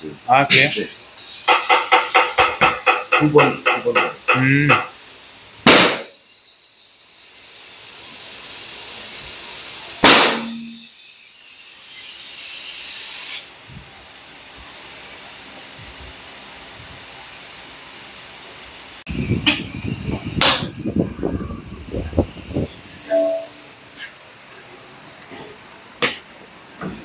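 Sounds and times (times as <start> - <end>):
air hissing: 0.6 - 14.0, 19.0 - 24.4
tyre bead popping bang: 5.7 - 6.1, 10.0 - 10.8.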